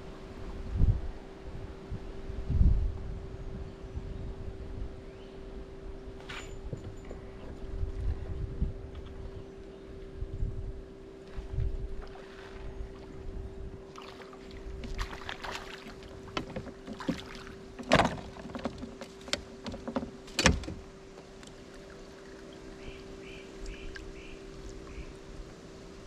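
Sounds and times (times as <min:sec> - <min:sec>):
electric hum: 0:00.0 - 0:26.0
knocks and clatter on boat: 0:06.2 - 0:09.4, 0:14.7 - 0:21.3.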